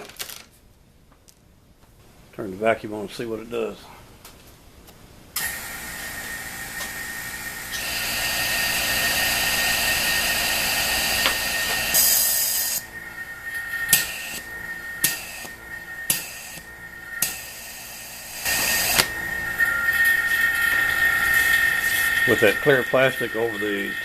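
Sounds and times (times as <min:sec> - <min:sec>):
air rushing hiss: 0:05.4 - 0:23.9
vacuum pump whining: 0:05.4 - 0:24.0.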